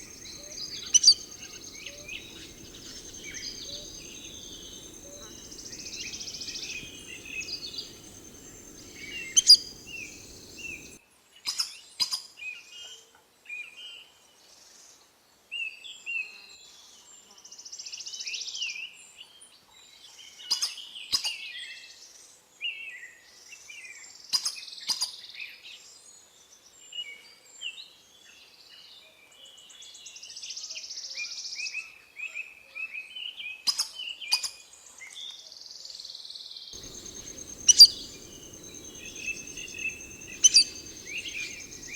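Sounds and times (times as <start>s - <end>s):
birds chirping: 0.0s - 11.0s, 36.8s - 41.9s.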